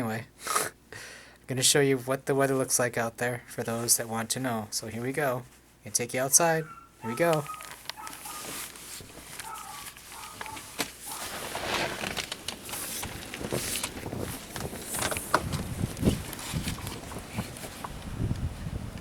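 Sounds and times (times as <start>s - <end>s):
footsteps in snow: 7.0s - 17.9s
clothing rustle: 7.0s - 19.0s
wind buffeting microphone: 13.0s - 19.0s.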